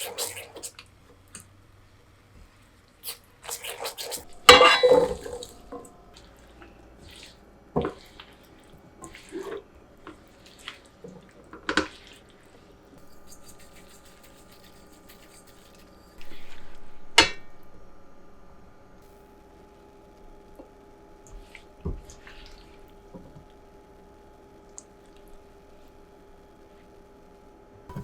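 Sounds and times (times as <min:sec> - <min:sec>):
water running: 0:00.0 - 0:01.7, 0:02.4 - 0:16.7
kitchenware knocks and clatters: 0:04.5 - 0:05.4.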